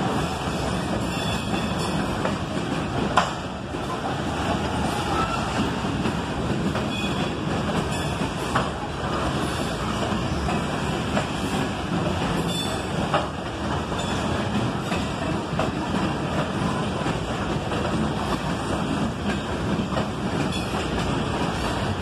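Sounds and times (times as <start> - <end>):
freight train wheels rumbling: 0.0 - 22.0.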